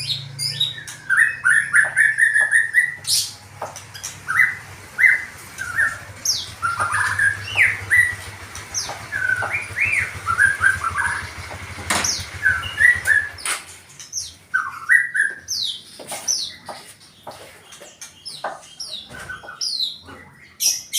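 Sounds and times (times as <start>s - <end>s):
songbird chirping and whistling: 0.0s - 17.1s
low hum: 3.3s - 13.8s.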